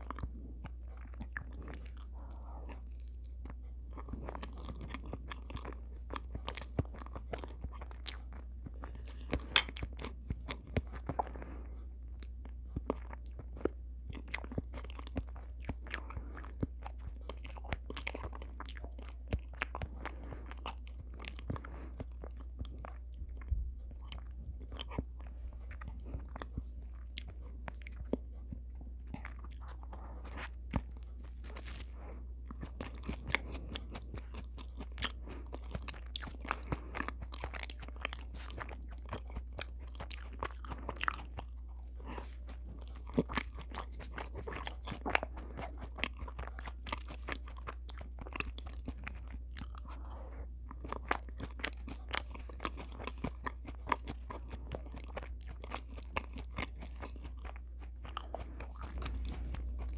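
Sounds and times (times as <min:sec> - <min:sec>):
low hum: 0:00.0 - 0:46.8
chewing pastry: 0:00.0 - 0:59.9.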